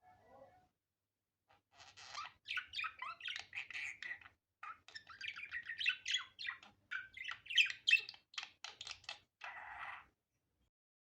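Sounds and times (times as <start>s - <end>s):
budgerigar warbling and chattering: 1.8s - 10.1s.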